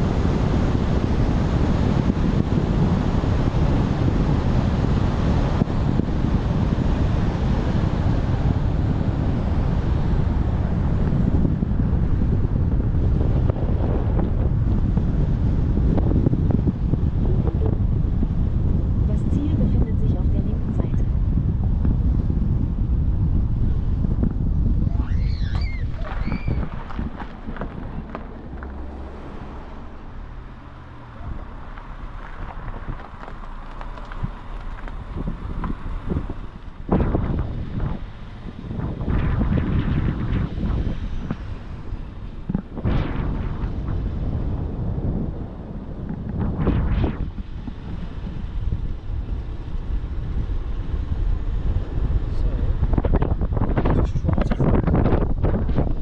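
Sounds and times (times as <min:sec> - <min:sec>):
vehicle engine humming: 0:00.0 - 0:56.0
wind buffeting microphone: 0:00.0 - 0:56.0.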